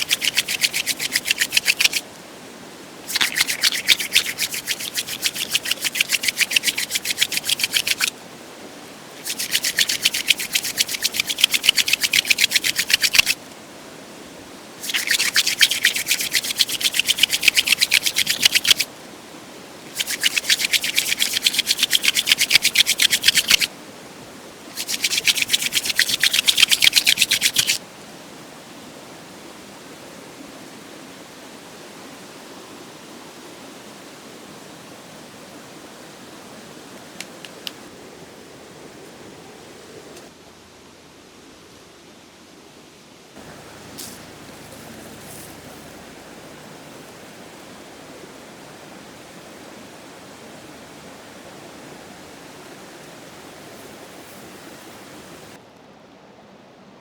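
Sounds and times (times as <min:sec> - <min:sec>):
quick rubbing strokes: 0:00.0 - 0:02.0, 0:03.1 - 0:08.1, 0:09.2 - 0:13.4, 0:14.8 - 0:18.9, 0:19.9 - 0:23.7, 0:24.7 - 0:27.8, 0:43.4 - 0:47.2
faint hiss: 0:00.0 - 0:56.0.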